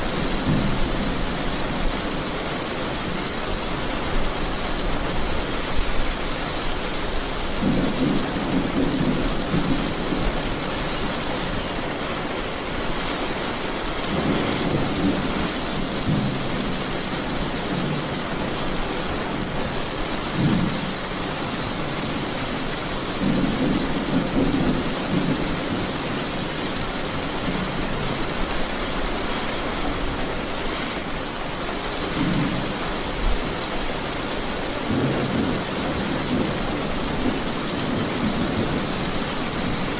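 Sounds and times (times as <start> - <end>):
heavy rain hissing: 0.0 - 39.9
low thunder rumbles: 7.4 - 10.8, 14.0 - 19.6, 20.3 - 28.4, 34.8 - 39.9.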